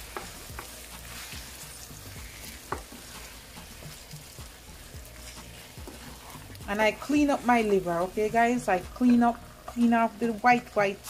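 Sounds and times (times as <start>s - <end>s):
liver and onions sizzling in pan: 0.0s - 11.0s
utensil knocking against pan: 2.7s - 3.0s.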